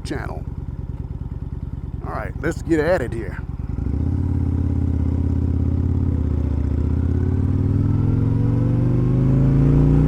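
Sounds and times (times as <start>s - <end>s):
motorcycle engine accelerating: 0.2s - 10.0s.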